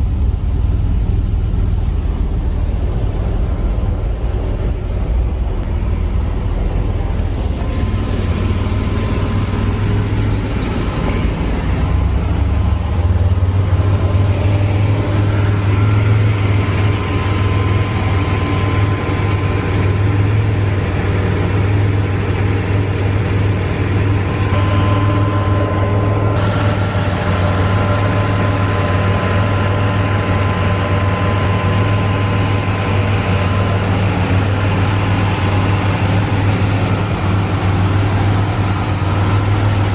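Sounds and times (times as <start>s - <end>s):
car engine running steadily: 0.0s - 39.9s.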